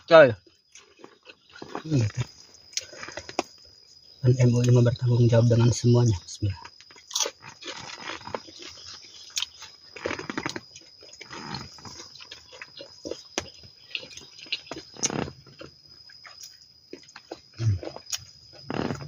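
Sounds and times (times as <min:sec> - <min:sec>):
person chewing and biting food: 0:00.6 - 0:01.9, 0:06.9 - 0:19.0.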